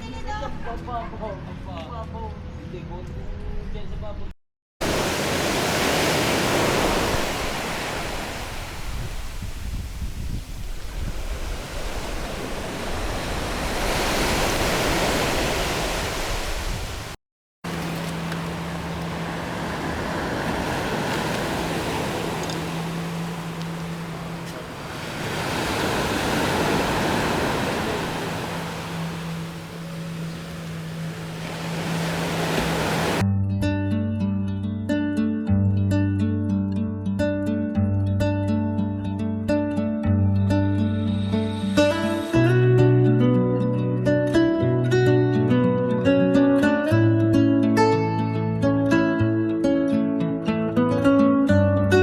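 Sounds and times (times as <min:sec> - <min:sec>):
waves washing on shore: 0:04.8 - 0:33.2.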